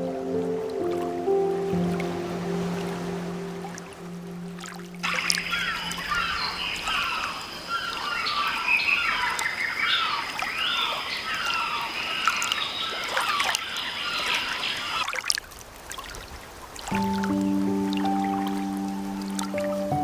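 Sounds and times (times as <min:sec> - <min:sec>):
birds chirping and chattering: 0:05.0 - 0:14.8.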